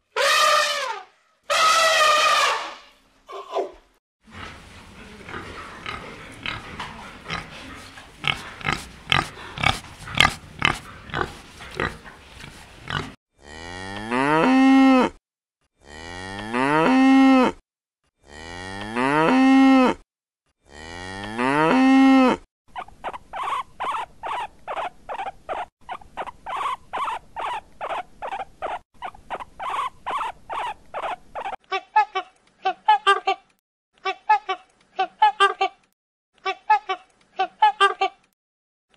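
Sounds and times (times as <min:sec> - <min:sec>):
warthogs grunting: 0:04.3 - 0:14.4
cow mooing: 0:12.9 - 0:15.2
guinea pigs squeaking: 0:22.7 - 0:31.6.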